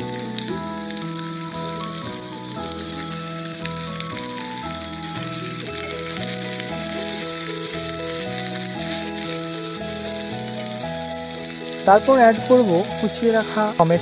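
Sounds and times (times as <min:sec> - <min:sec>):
background music: 0:00.0 - 0:14.0
vegetables sizzling in oil: 0:00.0 - 0:14.0
spatula stirring: 0:05.0 - 0:14.0.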